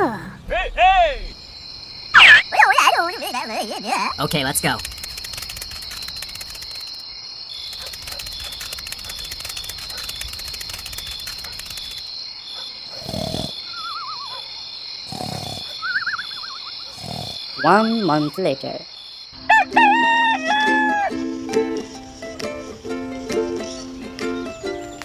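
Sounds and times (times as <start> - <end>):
insects trilling: 0.6 - 25.0
loud animal calls: 2.2 - 4.2, 12.9 - 18.0
thin wavering whistled call: 13.7 - 14.4, 15.8 - 16.8.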